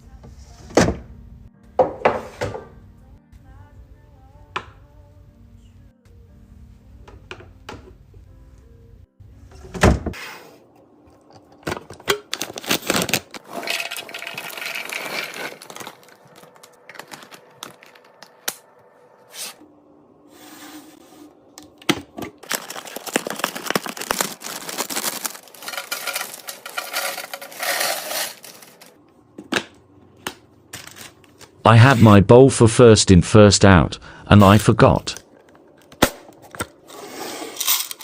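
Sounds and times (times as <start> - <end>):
packaging rustling: 12.3 - 18.4, 22.4 - 28.9, 30.7 - 31.6
containers and lids clicking: 13.4 - 18.5, 24.4 - 28.9.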